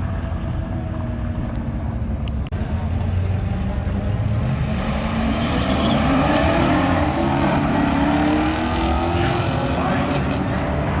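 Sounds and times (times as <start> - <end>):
car engine accelerating hard: 2.6 - 11.0.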